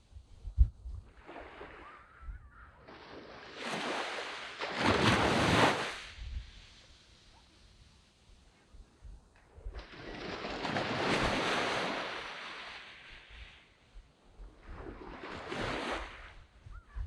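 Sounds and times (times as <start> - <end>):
waves washing onto beach: 1.1 - 9.0, 9.7 - 16.7.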